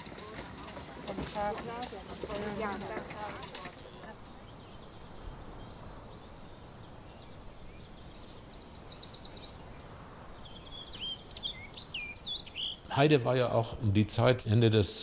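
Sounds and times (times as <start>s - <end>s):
steady outdoor hiss: 0.0s - 15.0s
small songbirds singing: 2.4s - 13.8s.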